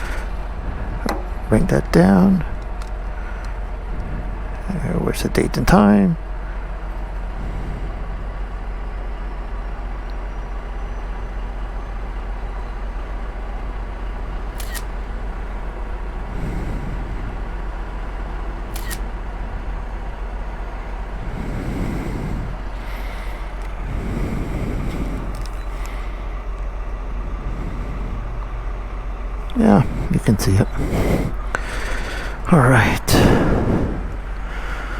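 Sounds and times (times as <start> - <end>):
road and wind noise: 0.0 - 34.9
sharp clicks: 14.6 - 14.9, 18.8 - 19.1, 24.9 - 26.0.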